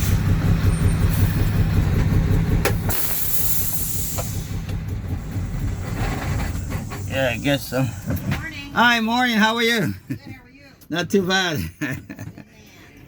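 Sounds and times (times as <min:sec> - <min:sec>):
diesel truck engine idling: 0:00.0 - 0:13.0
air brake click: 0:02.7 - 0:04.8
air brake hiss: 0:02.8 - 0:04.7.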